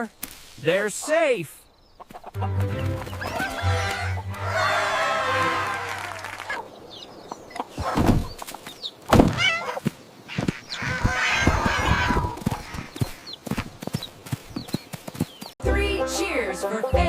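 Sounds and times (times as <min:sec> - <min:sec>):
hen-like call: 0:03.2 - 0:06.6.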